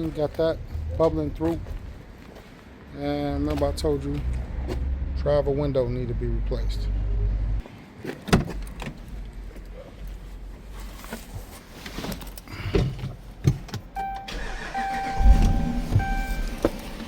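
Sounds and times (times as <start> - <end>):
electronic warning chime: 14.0 - 16.8.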